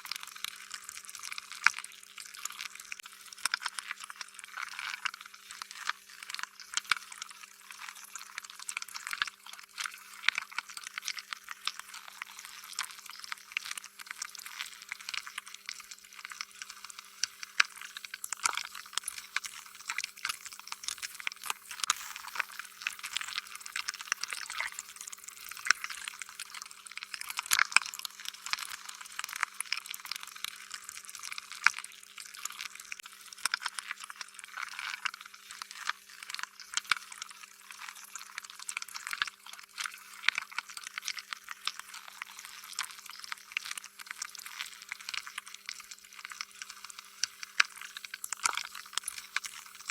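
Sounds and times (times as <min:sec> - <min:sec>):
slime squishing with wet crackles: 0:00.0 - 0:49.9
faint steady hum: 0:11.9 - 0:27.4.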